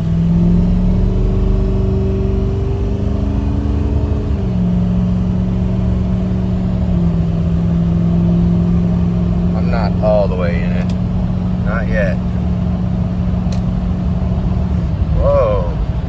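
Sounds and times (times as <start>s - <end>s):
diesel engine pulling: 0.0s - 16.0s
transmission shifting up: 0.0s - 16.0s.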